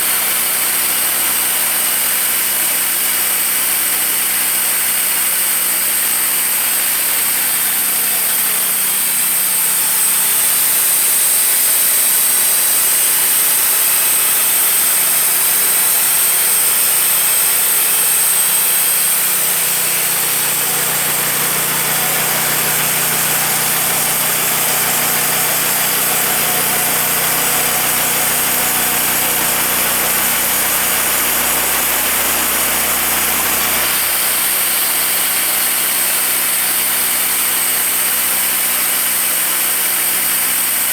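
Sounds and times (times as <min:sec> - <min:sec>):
sawmill engine running: 0:07.8 - 0:37.9.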